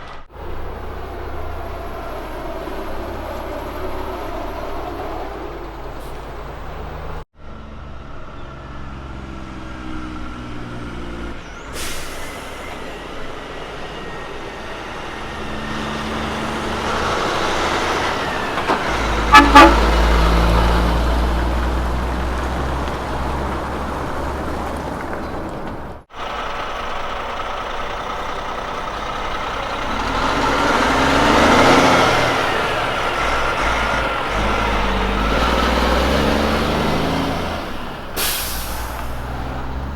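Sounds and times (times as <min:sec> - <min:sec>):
trucks driving past: 0:00.0 - 0:39.9
truck horn blasts: 0:19.0 - 0:20.8.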